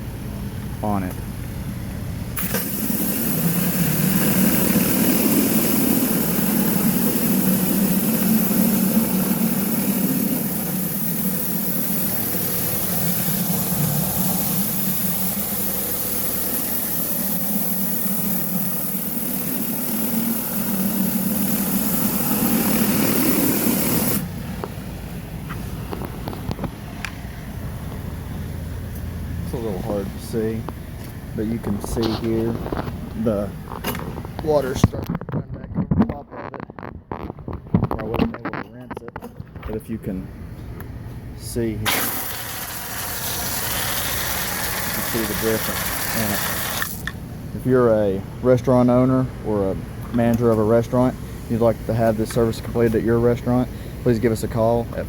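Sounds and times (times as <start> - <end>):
engine and pump running: 0.0 - 55.0
pressure washer spraying concrete: 2.4 - 24.3, 41.9 - 47.1.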